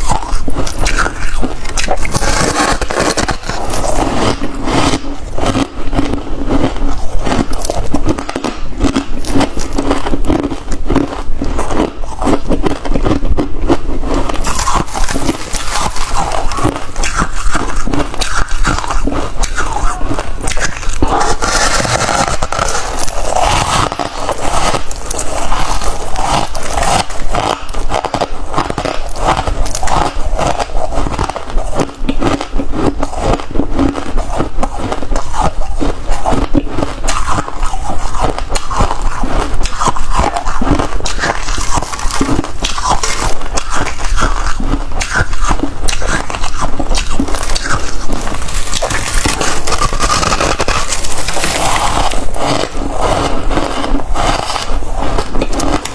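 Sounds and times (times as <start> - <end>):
frost being crunched: 46.9 - 52.8.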